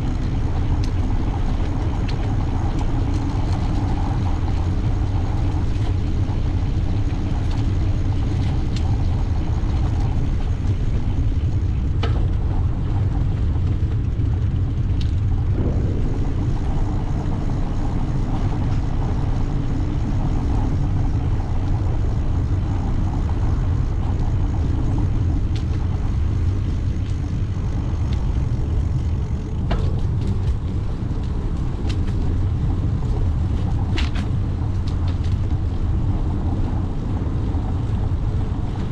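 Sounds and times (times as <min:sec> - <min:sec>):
wind rumble on microphone: 0:00.0 - 0:38.9
light clicks and rattles: 0:25.4 - 0:32.6.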